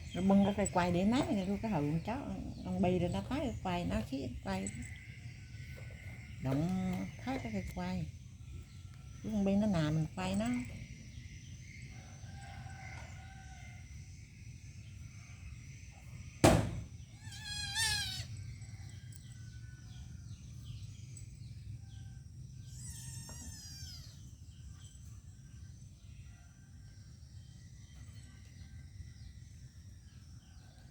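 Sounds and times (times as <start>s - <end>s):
faint chirps: 0.0s - 16.4s
low background hum: 0.0s - 30.9s
sharp knock: 16.4s - 16.9s
wavering animal calls: 17.2s - 18.7s, 22.7s - 24.3s.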